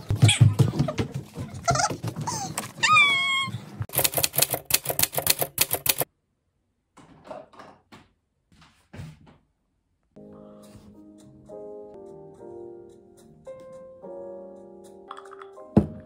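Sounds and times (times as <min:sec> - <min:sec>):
sharp clicks: 0:03.9 - 0:06.1
piano music: 0:10.2 - 0:16.0.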